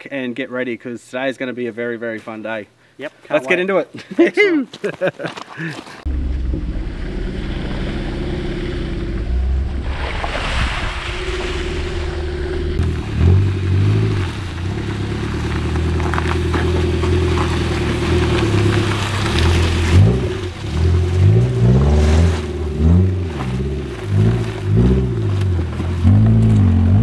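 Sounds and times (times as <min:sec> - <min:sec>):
steady rushing noise: 0:06.1 - 0:15.0
car engine revving: 0:06.1 - 0:27.0.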